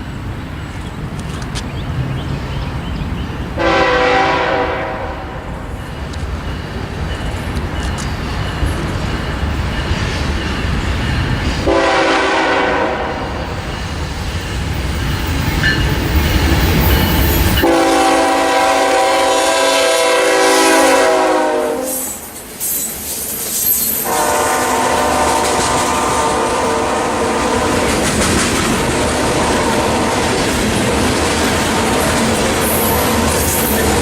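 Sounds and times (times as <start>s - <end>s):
train low rumble: 0.0s - 34.0s
train horn blasts: 3.6s - 5.7s, 11.6s - 13.4s, 17.6s - 22.3s, 24.0s - 28.0s, 29.0s - 30.4s.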